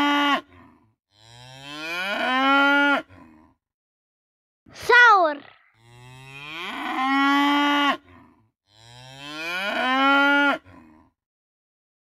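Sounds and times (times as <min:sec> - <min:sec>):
bull mooing: 0:00.0 - 0:03.6, 0:05.8 - 0:11.2.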